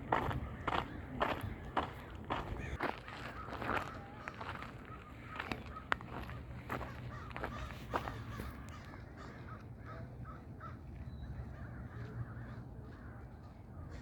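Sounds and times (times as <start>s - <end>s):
crows cawing: 0.1s - 10.8s.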